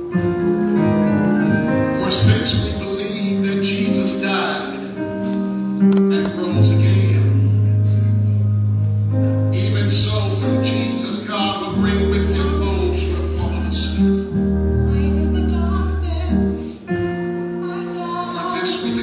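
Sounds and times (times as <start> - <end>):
gospel singing with instruments: 0.0 - 19.0
long held bass notes: 6.0 - 16.6.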